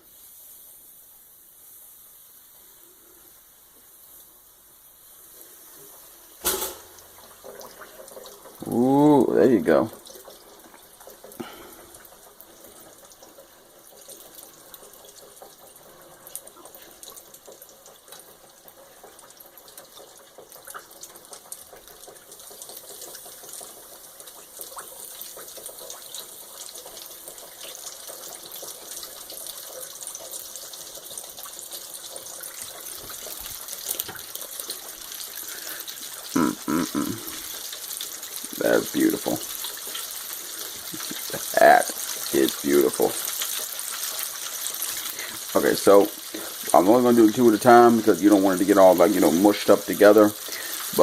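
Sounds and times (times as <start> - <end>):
chicken deep-frying in oil: 0.0 - 51.0.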